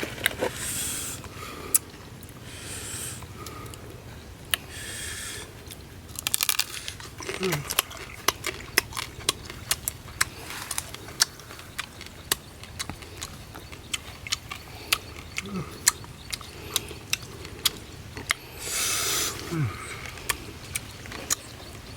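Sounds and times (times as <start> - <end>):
crab shell being chewed: 5.7 - 18.6.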